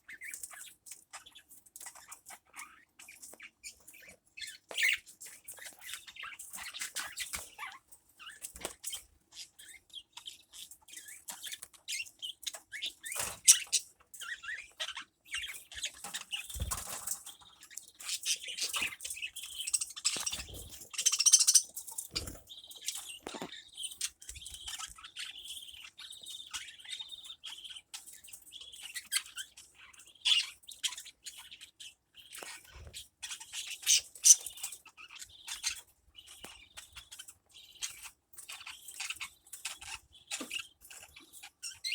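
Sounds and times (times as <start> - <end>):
birds chirping: 0.0 - 41.9
high bird trill: 18.1 - 24.6.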